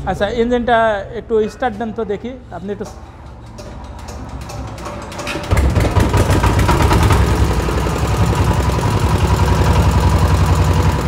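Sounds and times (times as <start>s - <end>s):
diesel engine cranking and running: 3.0s - 11.0s.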